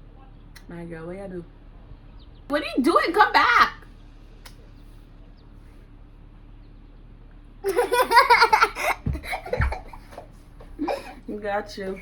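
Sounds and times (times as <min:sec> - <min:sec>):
girl laughing and squealing: 0:07.7 - 0:10.2
low thuds: 0:07.9 - 0:11.0.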